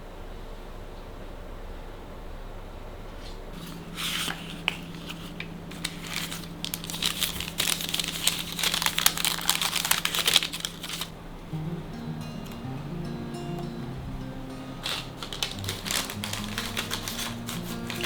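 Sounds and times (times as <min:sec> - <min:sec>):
faint steady hum: 0:00.0 - 0:18.0
crinkling and crackling: 0:03.5 - 0:11.4, 0:14.4 - 0:18.0.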